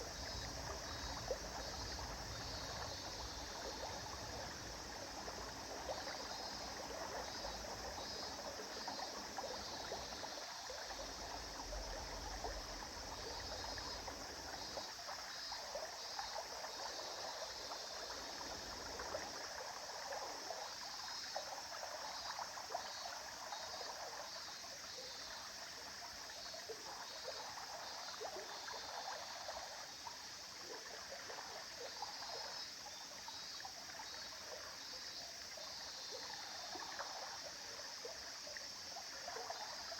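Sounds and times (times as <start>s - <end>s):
stream babbling over stones: 0.0s - 24.6s.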